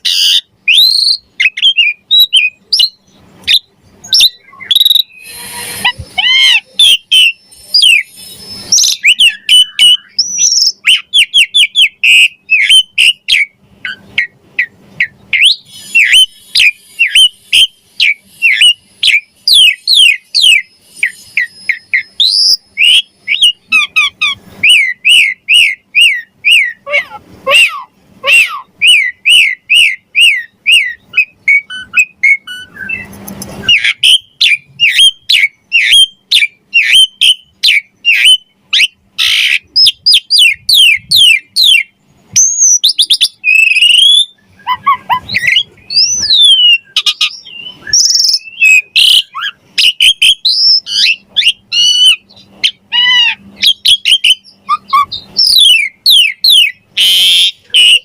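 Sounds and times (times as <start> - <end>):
starling singing: 0.0 - 58.0.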